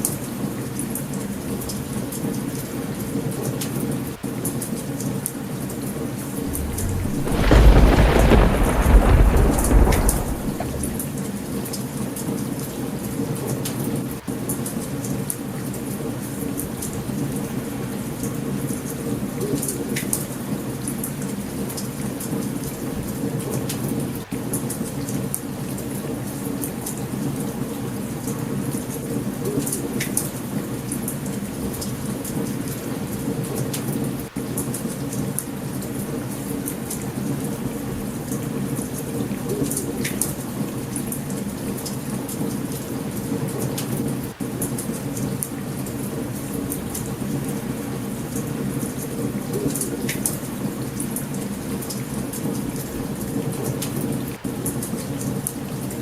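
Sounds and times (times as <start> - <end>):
thunder rumbling: 6.4 - 11.4
heavy rain: 6.4 - 11.6
campfire crackling: 6.5 - 11.2.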